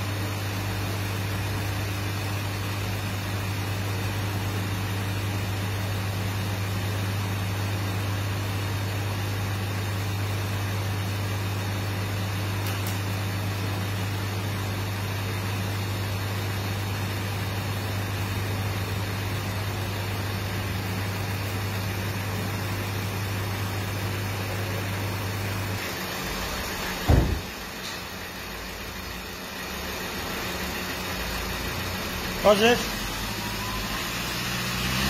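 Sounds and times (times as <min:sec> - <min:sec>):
low mechanical hum: 0:00.0 - 0:34.1
loud low thump: 0:27.0 - 0:27.6.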